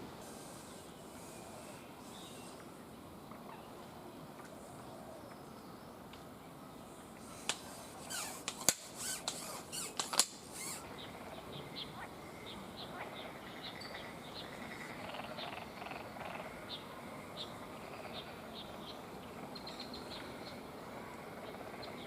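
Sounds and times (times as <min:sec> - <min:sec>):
frog calling: 0:10.5 - 0:16.8.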